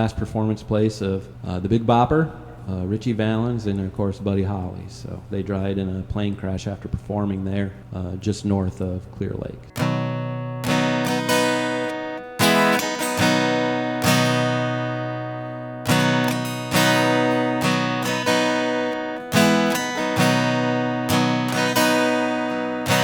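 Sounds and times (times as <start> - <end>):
acoustic guitar strumming chords: 9.6 - 23.0.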